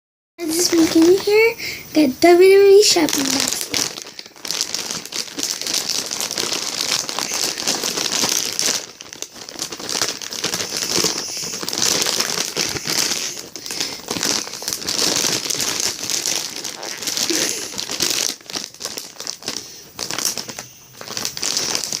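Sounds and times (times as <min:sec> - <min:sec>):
packaging crinkling: 0:00.4 - 0:22.0.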